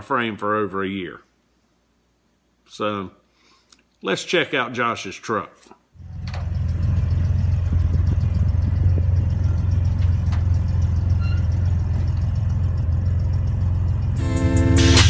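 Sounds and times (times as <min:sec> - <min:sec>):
truck engine idling: 0:06.0 - 0:15.0.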